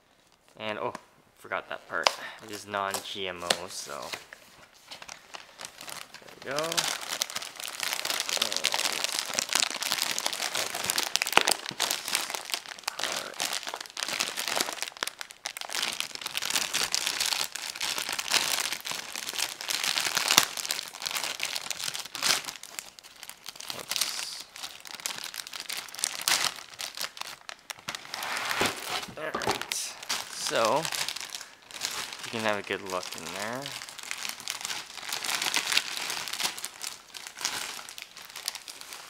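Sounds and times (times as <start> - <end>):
plastic bag crinkling: 2.5 - 39.0.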